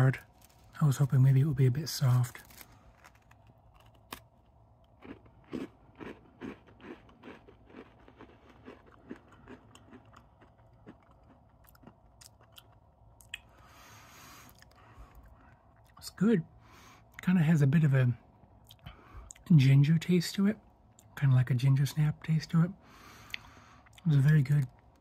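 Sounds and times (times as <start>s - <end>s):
person chewing crisp cookie: 0.1s - 0.8s, 2.0s - 16.0s, 18.5s - 19.5s, 22.9s - 25.0s.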